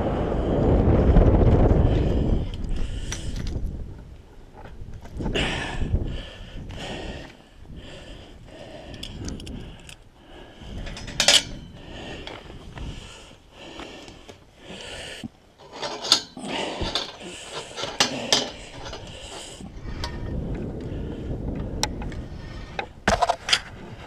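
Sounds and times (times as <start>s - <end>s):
metal hardware clinking: 10.8s - 11.7s, 15.6s - 20.2s
metal scraping and rubbing: 15.6s - 20.3s.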